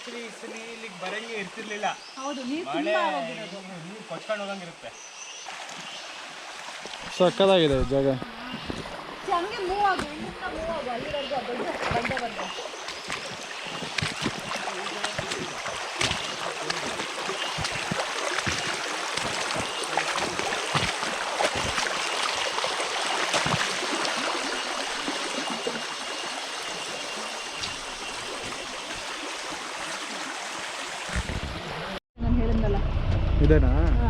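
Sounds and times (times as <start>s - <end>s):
stream running over rocks: 0.0s - 32.0s.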